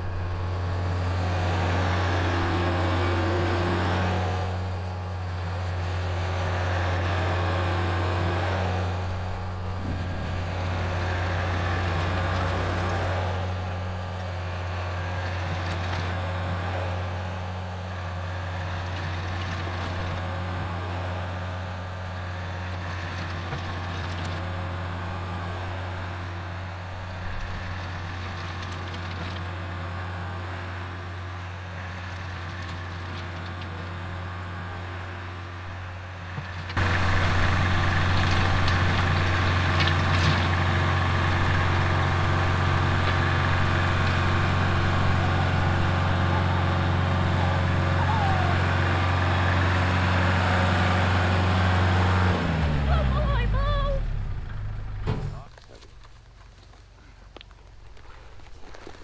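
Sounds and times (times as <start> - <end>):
tractor diesel engine running: 0.0 - 59.0
rototiller tilling soil: 36.2 - 54.3.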